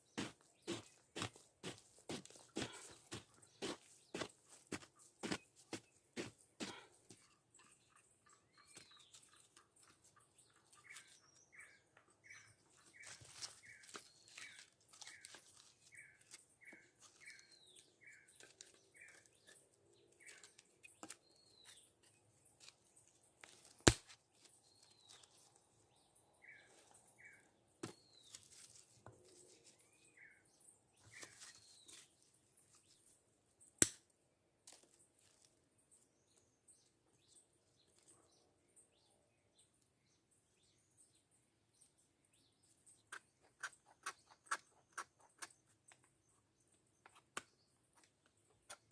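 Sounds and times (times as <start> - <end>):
scattered bird chirps: 7.1 - 22.8, 26.4 - 33.0, 43.0 - 46.4.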